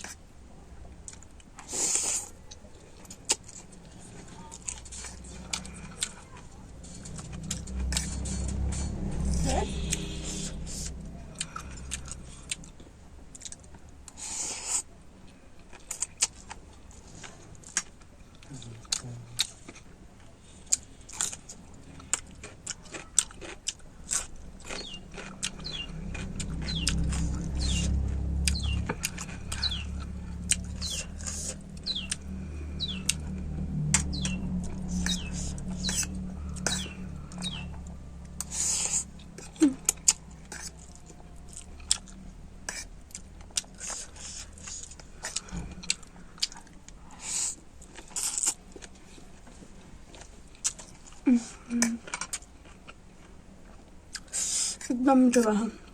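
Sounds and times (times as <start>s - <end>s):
chewing noodles: 0.0s - 55.9s
low steady hum: 2.2s - 14.2s, 14.9s - 54.2s
wet mouth clicks: 33.9s - 37.6s.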